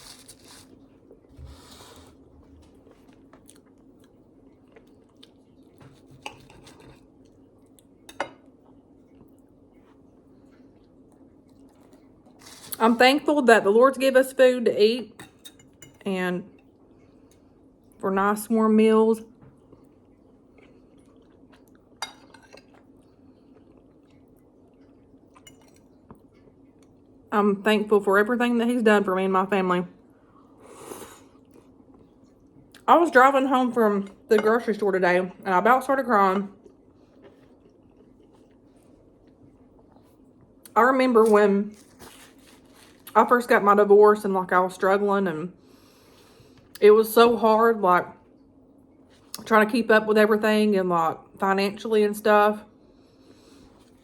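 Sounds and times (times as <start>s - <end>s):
low steady hum: 0.0s - 54.0s
person chewing and mouth sounds: 19.6s - 22.0s, 36.6s - 40.2s.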